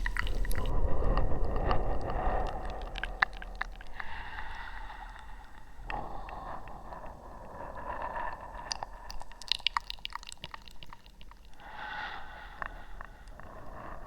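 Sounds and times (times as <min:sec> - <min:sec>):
soft wet mouth smacking: 0:00.0 - 0:00.7, 0:08.7 - 0:11.7
sharp wet mouth clicks: 0:00.0 - 0:00.8, 0:08.6 - 0:11.7.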